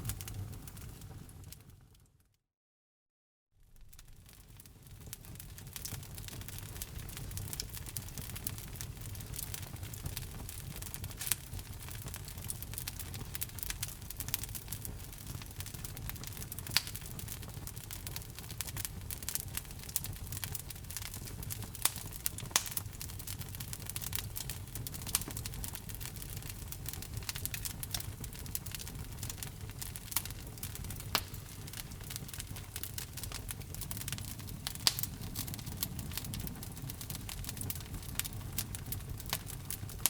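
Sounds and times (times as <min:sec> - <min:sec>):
fire crackling in a fireplace: 0:00.0 - 0:02.4, 0:03.6 - 0:40.0.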